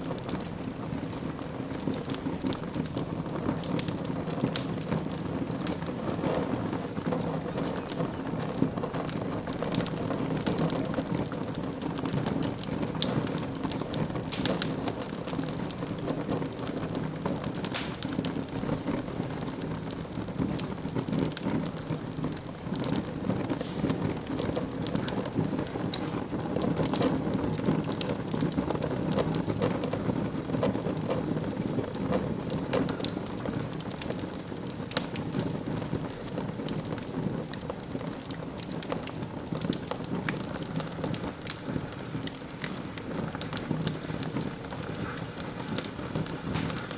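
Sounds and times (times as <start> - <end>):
low rush of flame: 0.0 - 46.9
sharp pops of fire: 0.0 - 46.9
wood fire crackling: 0.0 - 46.9.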